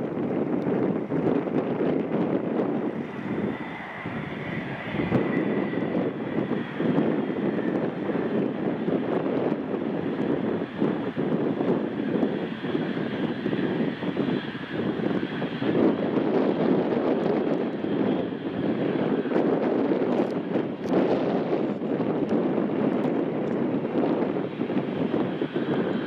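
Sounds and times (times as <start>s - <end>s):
jet engines running: 0.0s - 26.0s
wind buffeting microphone: 0.0s - 26.0s.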